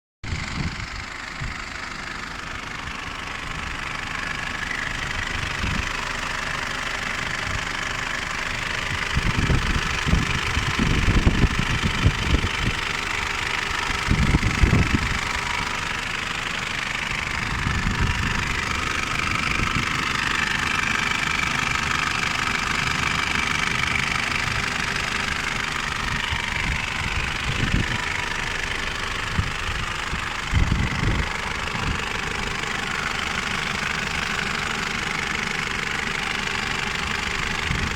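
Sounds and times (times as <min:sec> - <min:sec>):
diesel engine running: 0:00.2 - 0:37.9.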